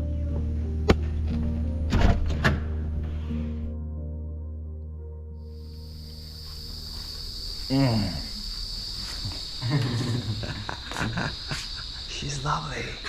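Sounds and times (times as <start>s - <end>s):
shrill insect chorus: 5.5s - 13.0s
person talking: 12.1s - 13.0s.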